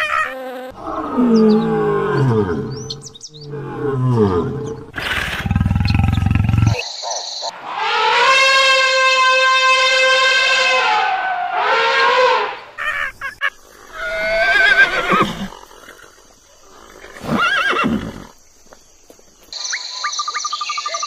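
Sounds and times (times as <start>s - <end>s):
horses neighing: 0.0s - 6.8s, 10.8s - 18.4s
rapid insect chirping: 0.0s - 7.5s, 12.8s - 21.0s
elephant trumpeting: 7.5s - 15.5s.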